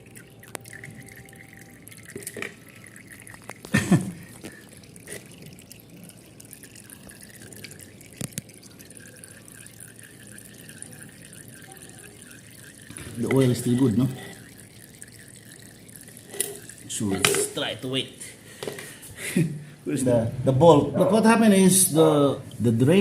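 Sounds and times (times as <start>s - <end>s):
oil trickling into can: 0.0s - 18.2s.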